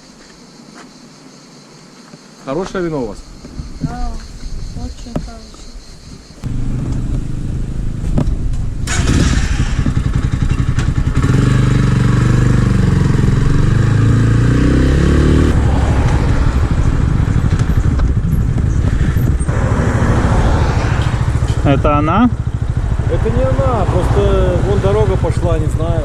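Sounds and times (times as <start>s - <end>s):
wind noise: 2.9s - 11.4s, 14.4s - 24.8s
motorcycle engine accelerating: 6.4s - 26.0s.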